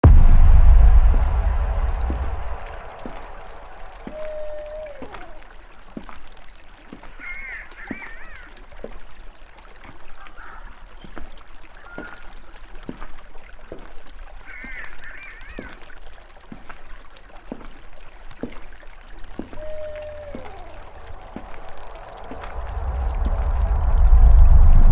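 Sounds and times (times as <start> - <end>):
birds wavering calls: 4.0 - 5.5, 19.3 - 22.0
small clicks: 8.6 - 10.1.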